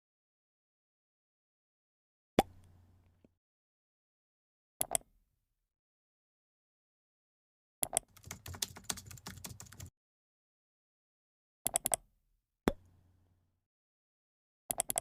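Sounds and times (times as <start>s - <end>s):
sharp keyboard-like clicks: 7.9s - 9.9s.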